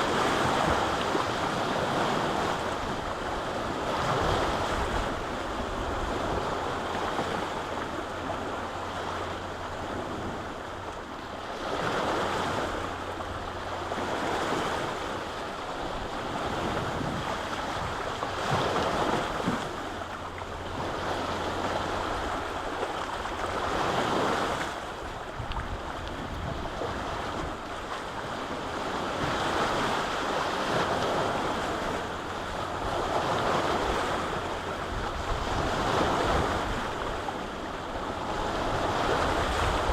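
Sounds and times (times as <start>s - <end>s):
lake waves washing ashore: 0.0s - 39.9s
wind rumble on microphone: 0.0s - 39.9s.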